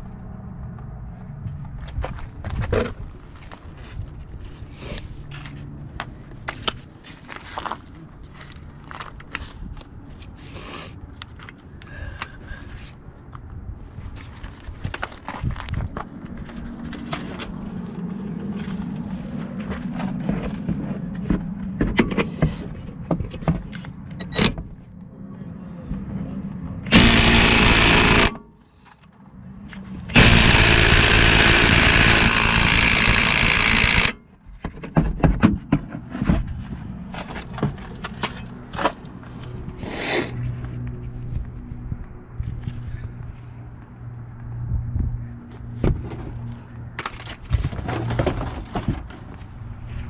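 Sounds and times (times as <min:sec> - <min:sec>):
cordless impact wrench running: 0:26.9 - 0:28.4, 0:30.1 - 0:34.2.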